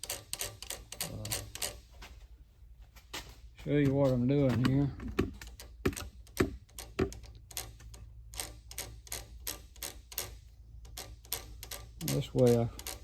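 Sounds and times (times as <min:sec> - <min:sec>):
sharp metallic clicks and taps: 0:03.8 - 0:13.0.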